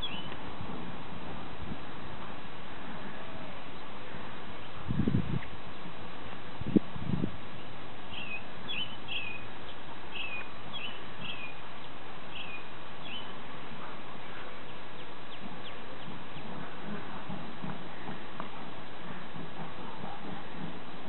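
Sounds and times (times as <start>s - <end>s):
small bird chirping: 0.0s - 0.4s, 8.1s - 13.3s
outdoor hiss: 0.0s - 21.0s.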